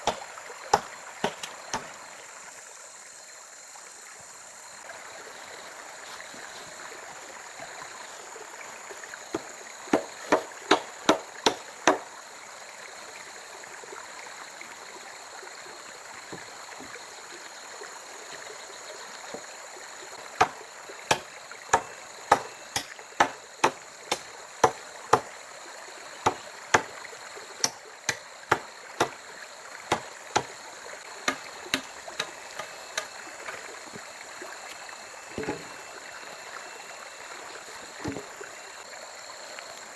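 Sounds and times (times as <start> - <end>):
blade chopping wood: 0.0 - 1.9, 9.3 - 12.1, 20.4 - 25.3, 26.2 - 26.9, 27.6 - 29.2, 29.9 - 30.6, 31.2 - 33.6.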